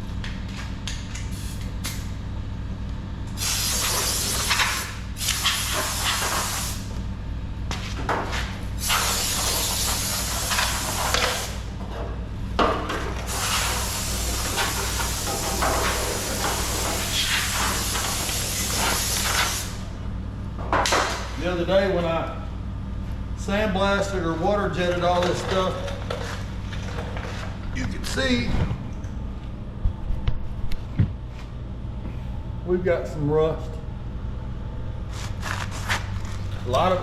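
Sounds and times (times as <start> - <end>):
steady low hum: 0.0 - 37.0
compressed air blow gun hissing: 3.4 - 6.9, 8.8 - 11.6, 13.3 - 15.3.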